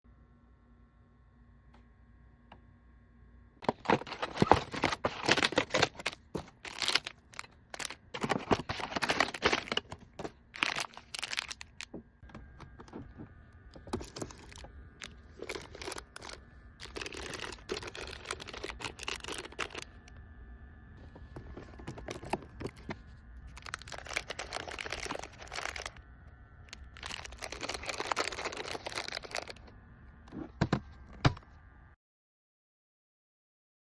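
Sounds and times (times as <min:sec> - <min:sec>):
plastic packaging crinkling: 0:03.6 - 0:12.0, 0:13.8 - 0:20.0, 0:21.3 - 0:26.0, 0:26.7 - 0:29.7
items clicking and knocking: 0:03.6 - 0:20.0, 0:21.1 - 0:26.0, 0:26.7 - 0:29.7, 0:30.3 - 0:31.4.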